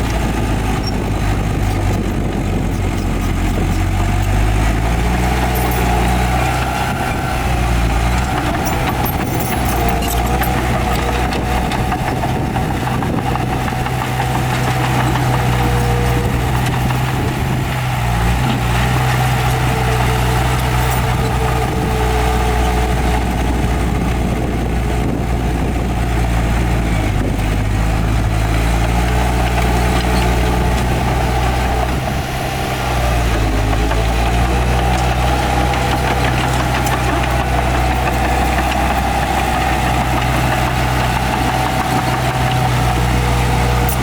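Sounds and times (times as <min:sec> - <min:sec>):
heavy diesel engine running: 0:00.0 - 0:44.0.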